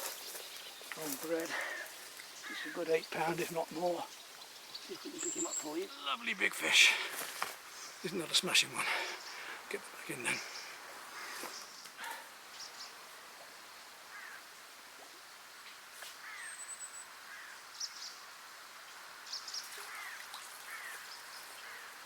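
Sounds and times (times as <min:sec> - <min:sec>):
bird chirps: 0:00.0 - 0:06.4.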